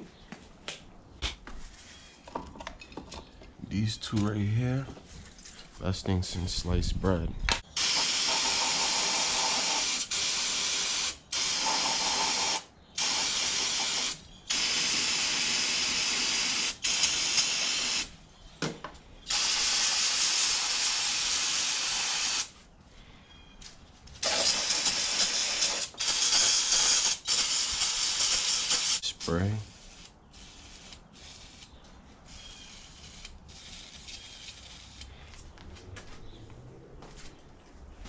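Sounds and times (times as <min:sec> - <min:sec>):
aerosol can spraying: 0:07.8 - 0:18.1, 0:19.3 - 0:22.5, 0:24.2 - 0:29.0.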